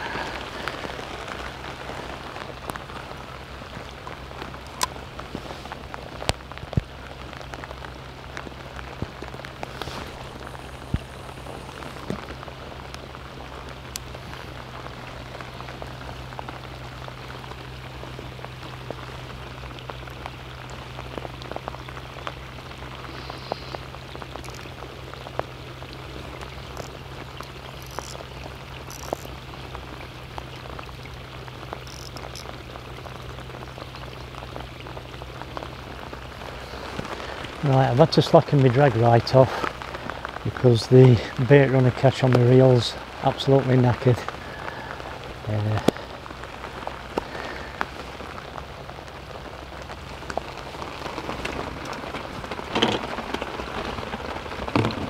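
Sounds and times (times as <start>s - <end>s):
low hum: 0.0s - 40.6s
heavy rain: 0.0s - 55.0s
drops ticking close by: 5.9s - 53.8s.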